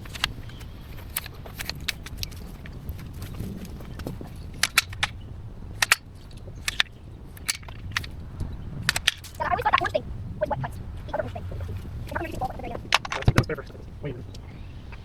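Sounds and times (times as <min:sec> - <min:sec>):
branches snapping under clippers: 0:00.0 - 0:09.8.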